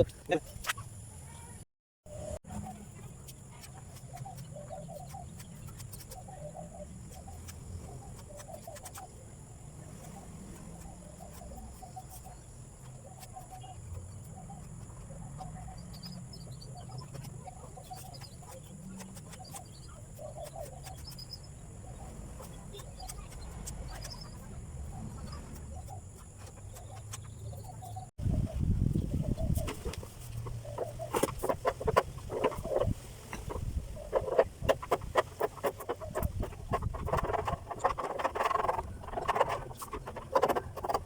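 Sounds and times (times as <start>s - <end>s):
birds calling: 9.8s - 41.0s.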